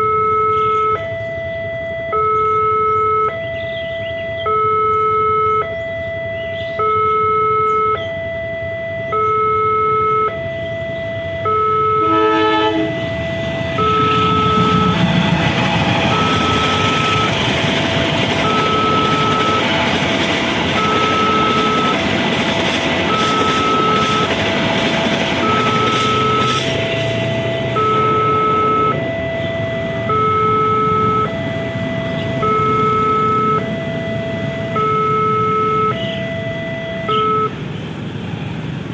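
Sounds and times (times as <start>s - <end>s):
level crossing alarm two-tone signal: 0.0s - 37.6s
passing train rumbling roar: 10.4s - 38.9s.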